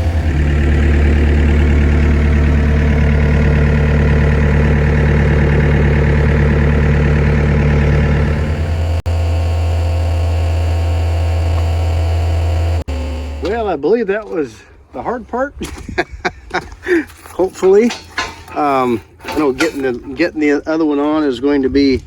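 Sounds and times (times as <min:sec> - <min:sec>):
excavator diesel engine under load: 0:00.0 - 0:13.8.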